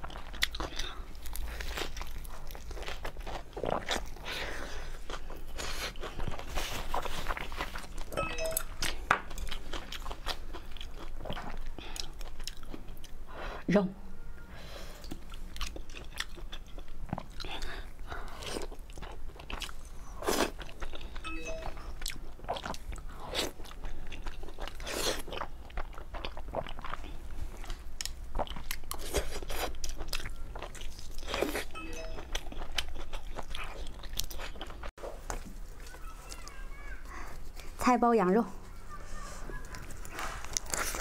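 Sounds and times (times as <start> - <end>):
biting and chewing food: 0.0 - 13.2, 15.0 - 37.6, 38.8 - 41.0.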